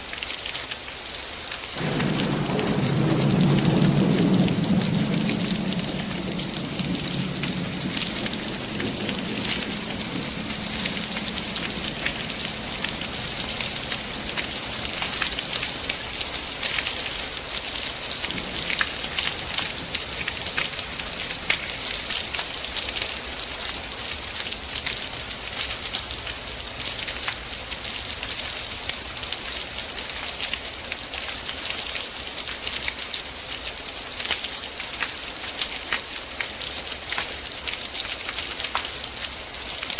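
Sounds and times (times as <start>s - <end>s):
heavy rain on hard surfaces: 0.0s - 39.9s
low thunder rumble: 1.8s - 16.6s, 18.1s - 22.0s.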